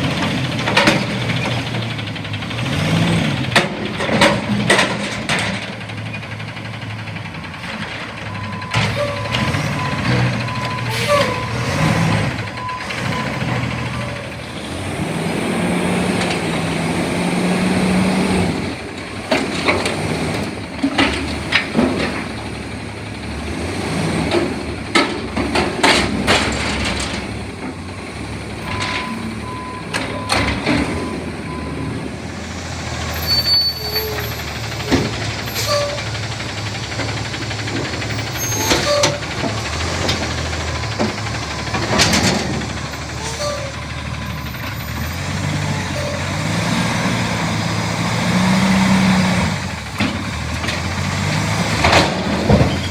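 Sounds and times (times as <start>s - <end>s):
garbage truck engine droning: 0.0s - 52.9s
metal clanks and bangs: 0.1s - 14.4s, 24.2s - 32.1s, 33.0s - 47.8s.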